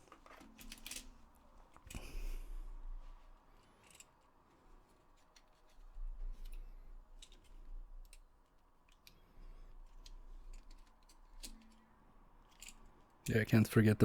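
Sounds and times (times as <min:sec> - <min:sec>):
small plastic parts clicking: 0:00.1 - 0:02.0, 0:03.7 - 0:04.2, 0:07.2 - 0:09.2, 0:09.8 - 0:13.1.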